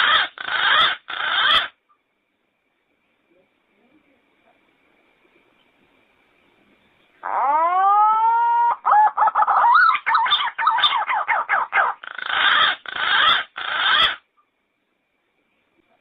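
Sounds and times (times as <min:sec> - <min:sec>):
pigeon calling: 0:00.0 - 0:01.8, 0:07.2 - 0:14.2.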